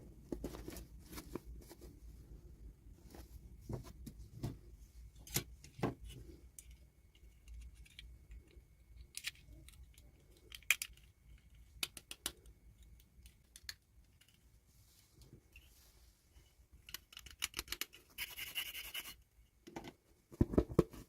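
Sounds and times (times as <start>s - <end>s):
plastic toy pieces clicking: 7.4s - 14.4s, 16.8s - 19.0s.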